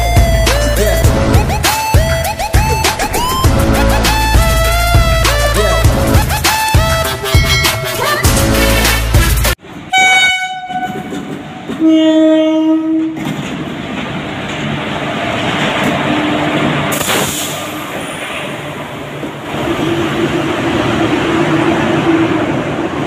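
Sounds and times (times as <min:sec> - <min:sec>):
train wheels rumbling on rails: 0:00.0 - 0:07.6, 0:08.2 - 0:23.0
upbeat intro music: 0:00.0 - 0:09.6
locomotive horn blasts: 0:09.9 - 0:13.3.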